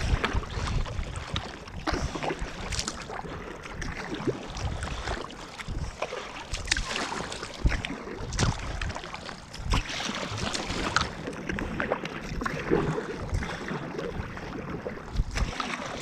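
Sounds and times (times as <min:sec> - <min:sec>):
paddle splashing water: 0:00.0 - 0:16.0.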